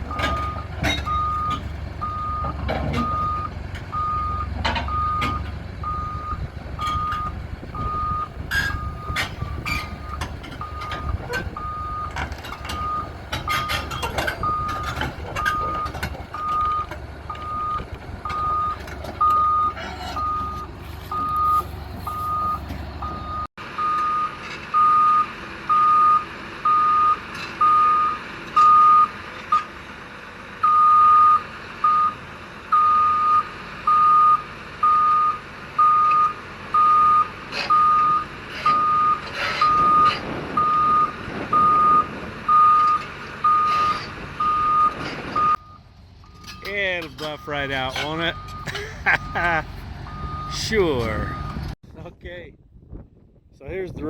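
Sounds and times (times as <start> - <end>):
metal clanks and knocks: 0.0 - 5.6, 6.5 - 23.3, 46.2 - 49.9
diesel engine rumbling: 0.0 - 54.0
backup alarm beeping: 0.1 - 29.1, 30.6 - 46.8, 48.2 - 49.5, 50.1 - 51.7.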